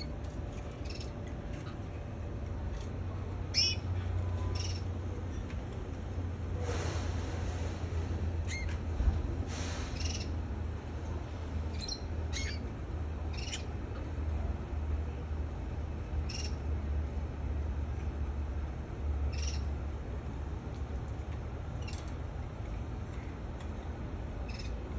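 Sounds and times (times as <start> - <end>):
steady low hum: 0.0 - 24.9
canary chirping: 0.7 - 1.9, 3.4 - 5.0, 8.5 - 8.8, 10.0 - 10.4, 11.7 - 12.7, 13.3 - 14.0, 16.2 - 16.6, 19.3 - 19.7, 24.4 - 24.8.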